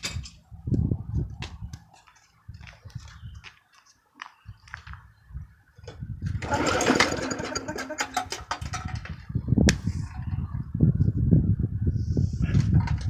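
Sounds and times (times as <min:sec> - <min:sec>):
lawnmower engine starting and running: 0:06.4 - 0:08.7.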